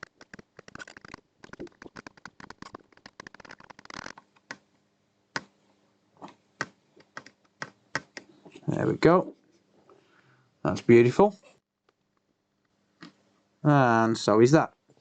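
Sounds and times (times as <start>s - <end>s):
flux crackling and popping: 0.0s - 4.7s.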